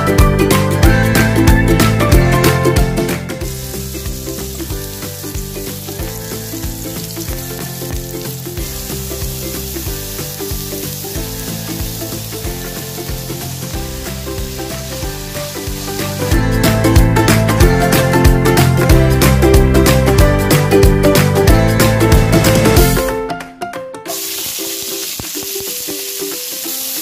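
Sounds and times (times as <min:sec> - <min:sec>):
carrots sizzling in a wok: 0:03.3 - 0:20.1, 0:24.1 - 0:27.0.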